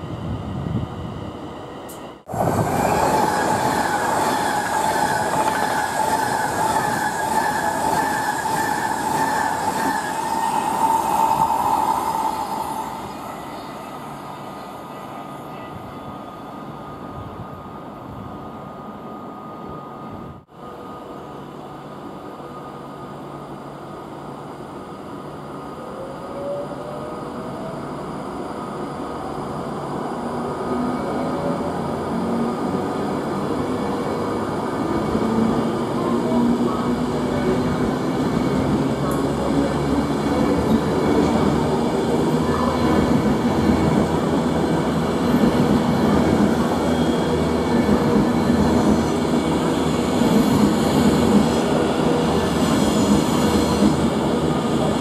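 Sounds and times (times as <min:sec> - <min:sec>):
electric train running: 0:01.9 - 0:13.2
loud high squeal: 0:02.7 - 0:13.9.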